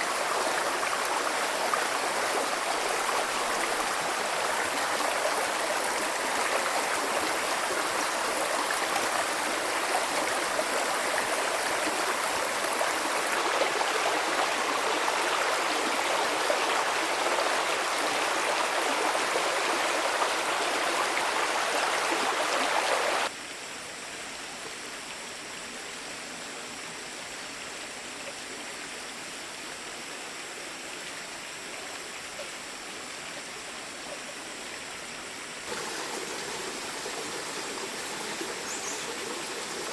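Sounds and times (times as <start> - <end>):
stream water flowing: 0.0 - 23.6, 24.2 - 39.9.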